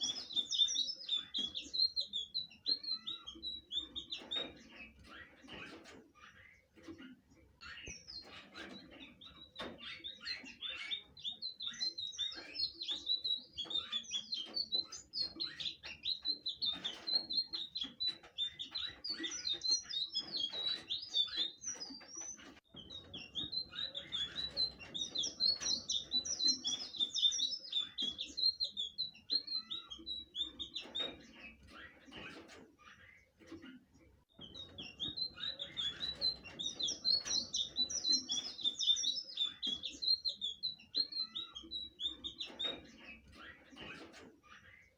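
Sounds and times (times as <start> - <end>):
bird singing chirping notes: 0.0 - 5.1, 7.6 - 31.8, 34.3 - 44.0.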